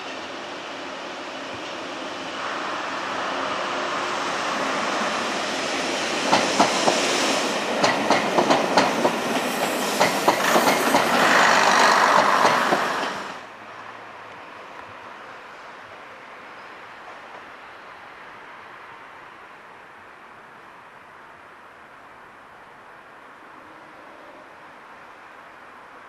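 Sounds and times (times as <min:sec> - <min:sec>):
rushing hiss: 0:00.0 - 0:13.5
train wheels clacking over joints: 0:06.3 - 0:07.1, 0:07.7 - 0:13.4.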